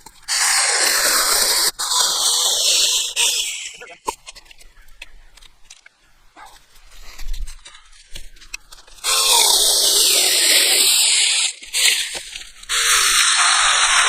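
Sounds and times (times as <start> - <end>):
electric chainsaw cutting wood: 9.0 - 11.6, 12.7 - 14.0.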